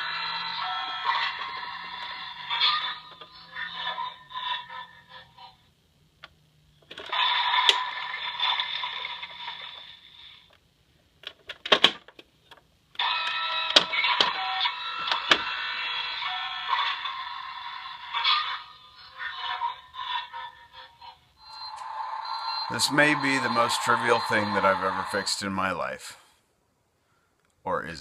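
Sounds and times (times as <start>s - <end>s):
tinny toy speaker sound effects: 13.0s - 26.3s.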